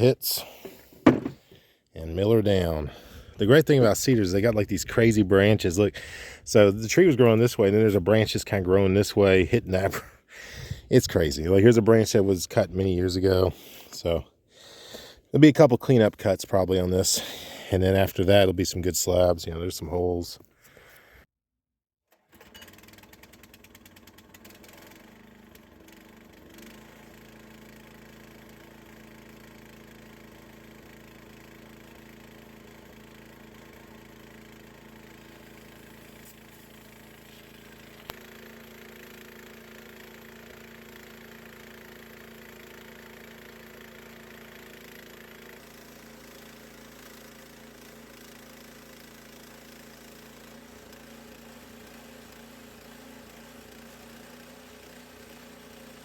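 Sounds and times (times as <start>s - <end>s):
sawmill engine running: 22.4s - 56.0s.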